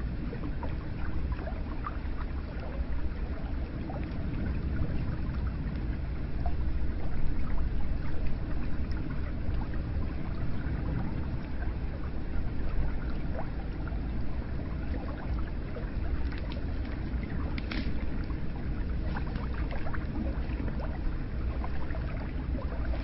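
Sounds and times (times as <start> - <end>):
water splashes and drips: 0.3 - 23.0.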